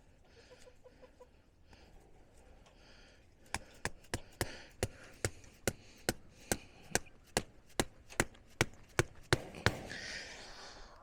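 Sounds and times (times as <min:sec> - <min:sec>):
hammer blows: 0:03.5 - 0:10.6.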